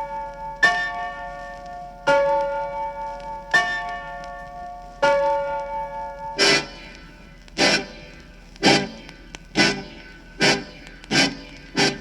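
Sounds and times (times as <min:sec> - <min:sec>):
locomotive bell ringing: 0:00.0 - 0:06.9.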